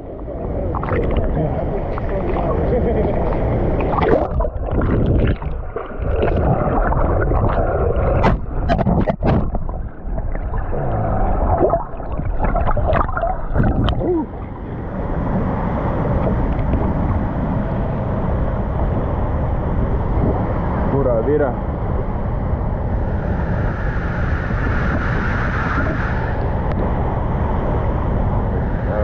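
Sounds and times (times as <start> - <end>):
water splashing and gurgling: 0.7 - 14.6.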